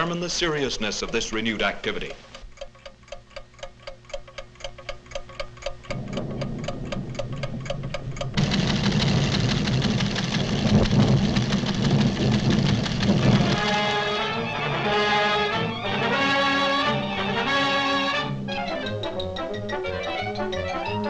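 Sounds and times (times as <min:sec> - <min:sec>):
instrument ticking: 0:00.0 - 0:10.8
low rumble: 0:05.9 - 0:16.1.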